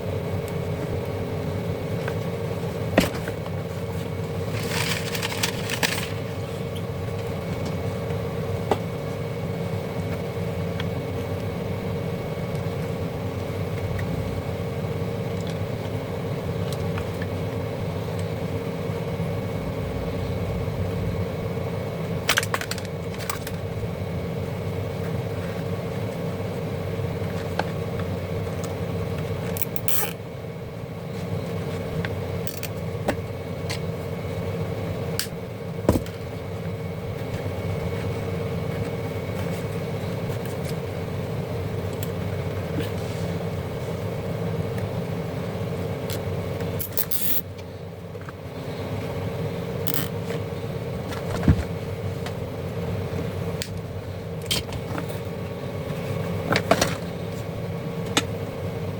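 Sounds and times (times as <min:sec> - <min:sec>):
steady low hum: 0:00.0 - 0:58.9
clicks and scrapes from handling: 0:49.9 - 0:50.1.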